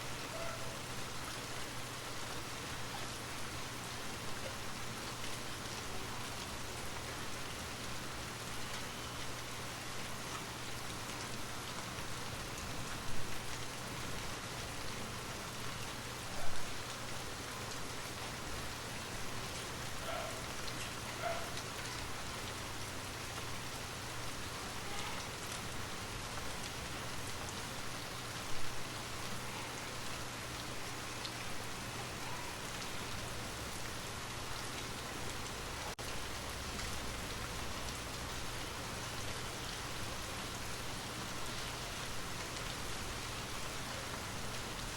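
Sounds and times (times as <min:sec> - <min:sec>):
steady rain patter: 0:00.0 - 0:44.9.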